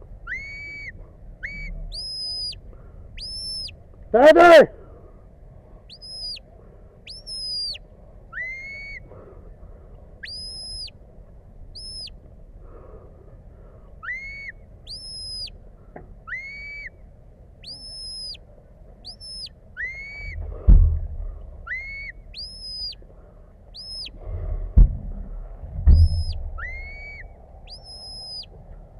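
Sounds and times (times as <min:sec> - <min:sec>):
sharp whistled commands: 0:00.3 - 0:02.6, 0:05.9 - 0:06.4, 0:07.1 - 0:07.8, 0:10.3 - 0:10.9, 0:14.0 - 0:15.5, 0:17.7 - 0:18.4, 0:19.1 - 0:20.4, 0:21.7 - 0:23.0, 0:23.8 - 0:24.1, 0:26.0 - 0:28.5
brief low rumble: 0:00.9 - 0:02.7, 0:20.2 - 0:22.1, 0:23.9 - 0:28.9.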